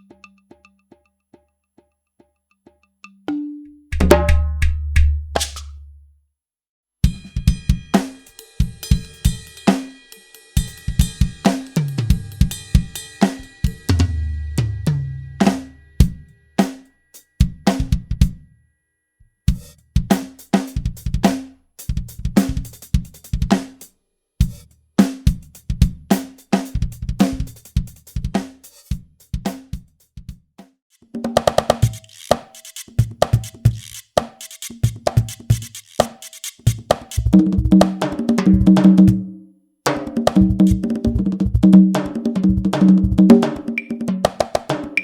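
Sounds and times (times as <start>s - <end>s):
electronic drum kit grooves: 10.6s - 14.8s, 31.4s - 39.2s, 39.9s - 45.0s.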